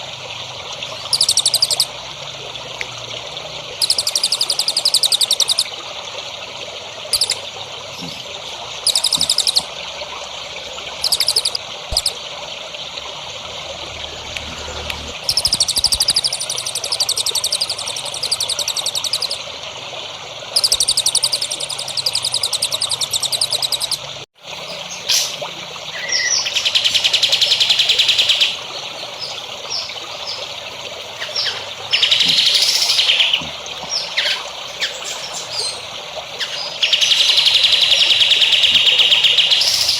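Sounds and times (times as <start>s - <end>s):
water trickling: 0.0s - 39.9s
songbirds trilling: 0.9s - 1.9s, 3.8s - 5.7s, 7.1s - 9.8s, 10.9s - 12.2s, 15.2s - 19.4s, 20.5s - 39.9s
buzzy bird calls: 20.6s - 39.9s.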